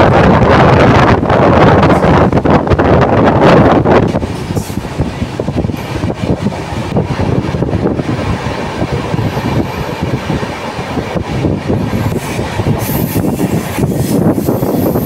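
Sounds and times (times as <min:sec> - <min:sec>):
train wheels clattering on rails: 0:03.5 - 0:15.0.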